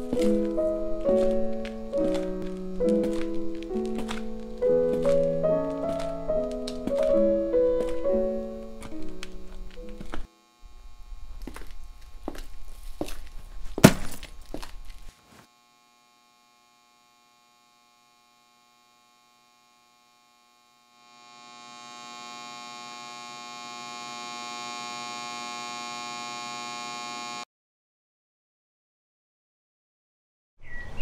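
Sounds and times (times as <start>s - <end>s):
ambient drone of held tones: 0.0s - 11.6s, 15.6s - 27.4s
low electrical hum: 0.0s - 27.4s.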